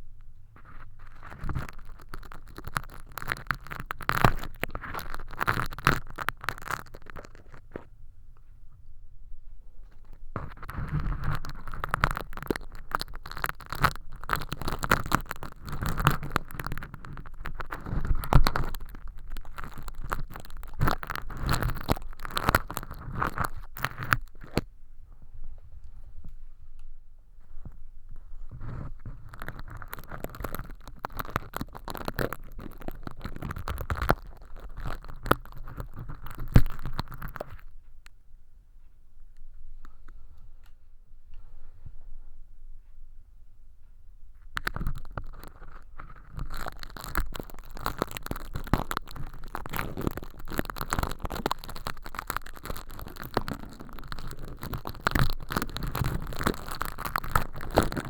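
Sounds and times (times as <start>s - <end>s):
film crackling and scraping: 0.5s - 7.9s, 9.8s - 24.7s, 27.6s - 37.7s, 44.4s - 58.0s.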